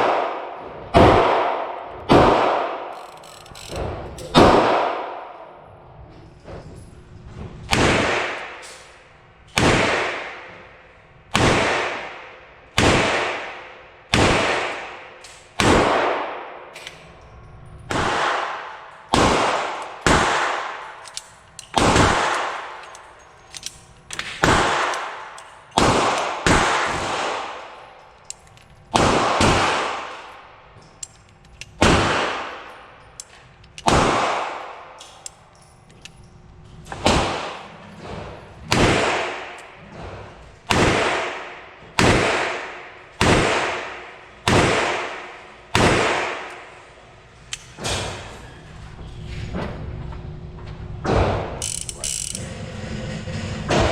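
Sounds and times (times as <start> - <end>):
revolver gunshots with echo: 0.0 - 2.9, 4.3 - 5.6, 7.7 - 8.6, 9.6 - 10.5, 11.3 - 16.7, 17.9 - 21.0, 21.8 - 22.8, 24.2 - 27.8, 28.9 - 30.3, 31.8 - 32.7, 33.8 - 35.0, 37.0 - 37.7, 38.7 - 39.6, 40.7 - 46.5.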